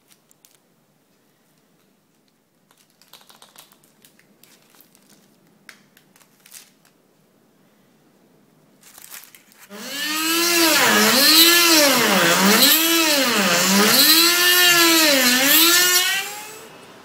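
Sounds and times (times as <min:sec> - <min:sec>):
crinkling rustles: 0:00.0 - 0:07.0, 0:08.7 - 0:09.7.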